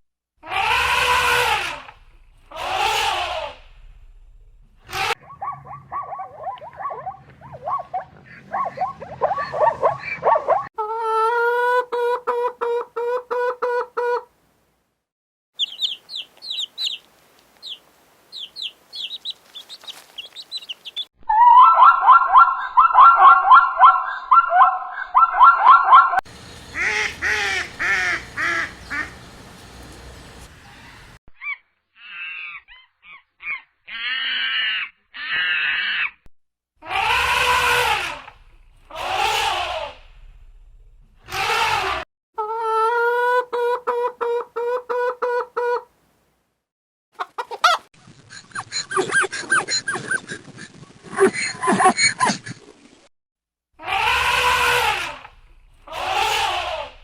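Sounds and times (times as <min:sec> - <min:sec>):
overlapping squawks: 0:00.4 - 0:03.8, 0:18.4 - 0:29.6, 0:36.8 - 0:40.1, 0:53.8 - 0:57.0
bird calls: 0:05.1 - 0:10.7, 0:15.6 - 0:36.2.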